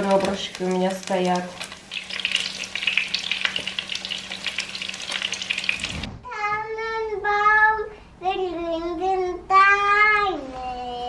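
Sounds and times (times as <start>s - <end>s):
chicken sizzling in hot oil: 0.0s - 6.1s
toddler singing: 6.2s - 11.0s.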